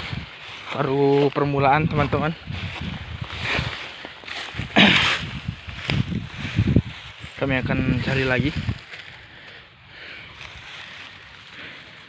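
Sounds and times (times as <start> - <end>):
strong wind buffeting microphone: 0.0 - 0.4, 1.5 - 8.9.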